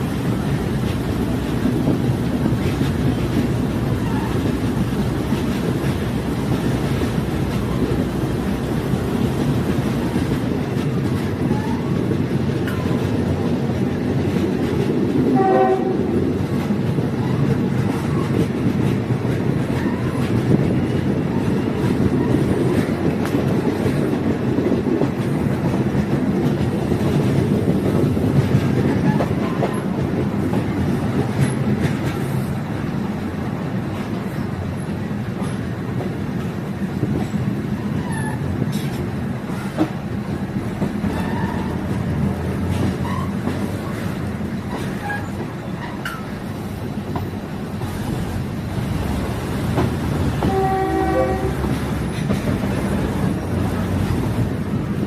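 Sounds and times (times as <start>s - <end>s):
train engine and wheels rumbling: 0.0s - 55.0s
train horn blast: 15.3s - 16.1s, 50.4s - 51.8s.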